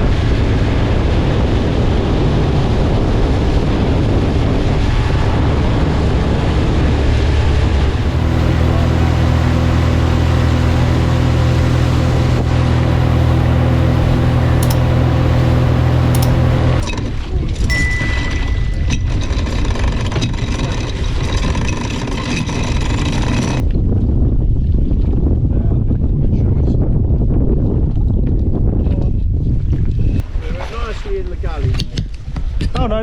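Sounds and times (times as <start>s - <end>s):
wind and water rushing: 0.0s - 19.6s
outboard motor running: 3.2s - 17.2s, 17.9s - 23.7s.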